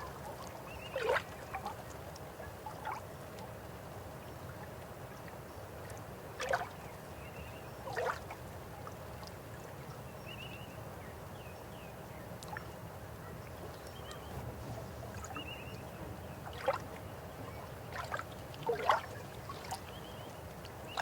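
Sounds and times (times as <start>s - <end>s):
water splashing gurgles: 0.0s - 1.9s, 6.4s - 6.8s, 7.8s - 8.4s, 16.4s - 21.0s
river flowing: 14.4s - 21.0s.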